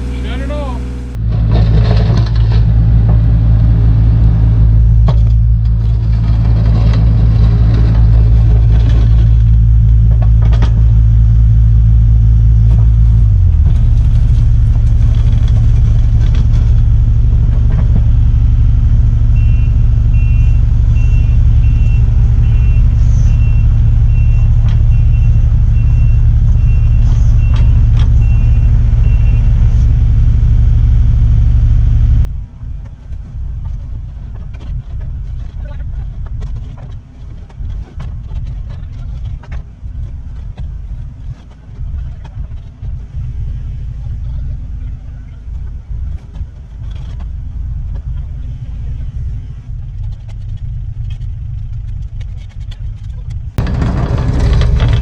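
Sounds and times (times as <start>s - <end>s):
excavator diesel engine running: 0.0s - 32.3s, 53.6s - 55.0s
pulsing beeping alarm: 19.2s - 32.2s.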